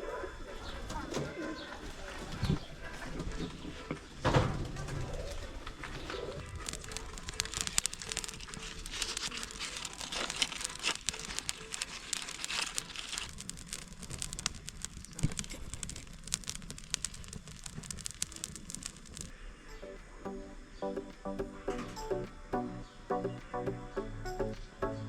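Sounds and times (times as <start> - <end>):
dense crackling and crinkling: 0.0 - 19.4.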